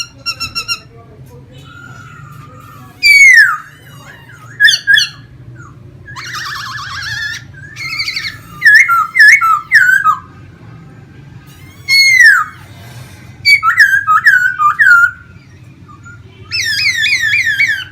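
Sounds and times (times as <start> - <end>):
bird singing whistled phrases: 3.0 - 3.7, 4.5 - 10.3, 11.8 - 12.6, 13.4 - 17.9.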